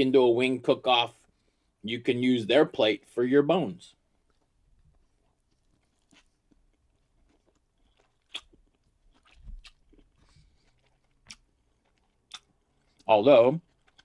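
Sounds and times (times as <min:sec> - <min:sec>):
man chewing and crunching food: 0:01.1 - 0:01.9, 0:03.9 - 0:14.0.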